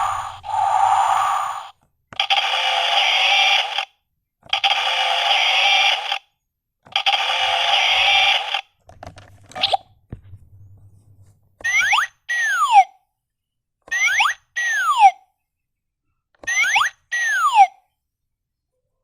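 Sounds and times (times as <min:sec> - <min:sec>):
hissing bursts: 0:00.0 - 0:03.8.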